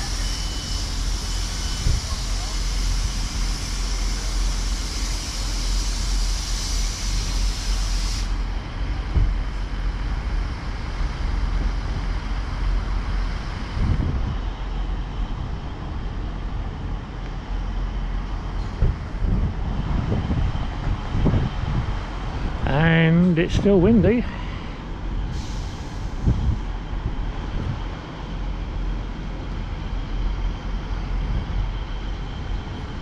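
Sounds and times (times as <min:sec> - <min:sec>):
wind buffeting microphone: 0:13.4 - 0:14.5, 0:18.1 - 0:22.7, 0:24.8 - 0:29.0.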